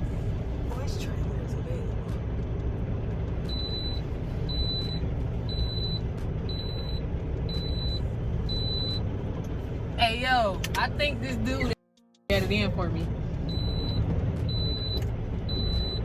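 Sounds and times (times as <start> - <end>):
diesel engine idling: 0.0 - 16.0
backup alarm beeping: 3.5 - 9.0, 13.5 - 16.0.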